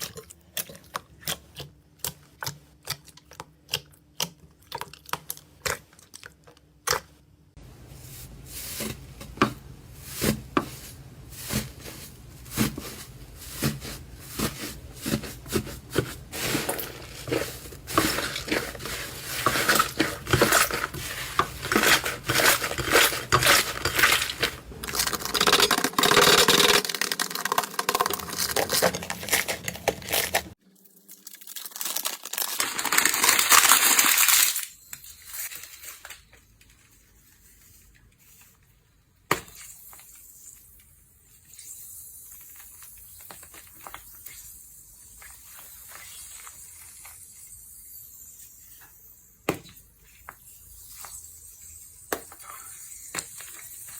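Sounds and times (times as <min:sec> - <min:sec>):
slime popping and crackling: 0:15.8 - 0:30.5, 0:31.1 - 0:34.6.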